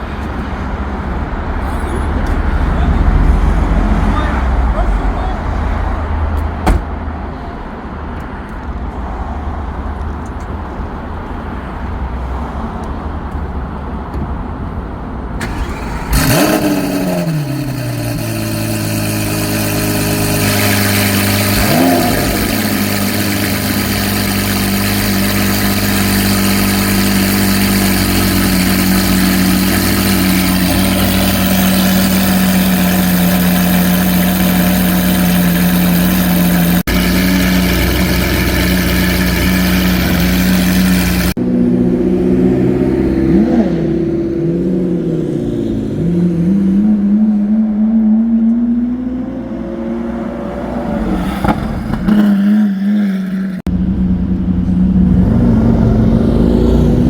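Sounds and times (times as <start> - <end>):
car engine starting and idling: 0.0 - 57.0
single knock: 6.6 - 6.9
engine throttle blip: 15.4 - 42.2.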